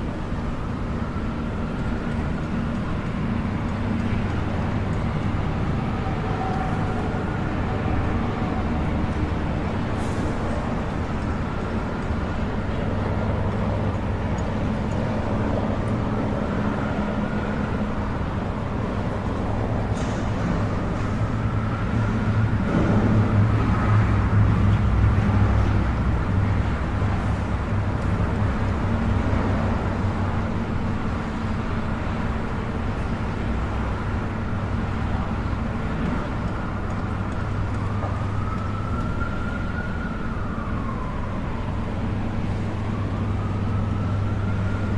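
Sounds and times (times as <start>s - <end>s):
street traffic rumbling: 0.0s - 44.9s
siren wailing: 36.7s - 44.9s.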